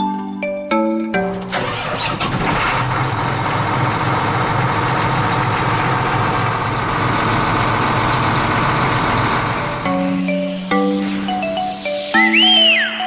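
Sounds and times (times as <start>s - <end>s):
small engine running: 1.3s - 10.7s.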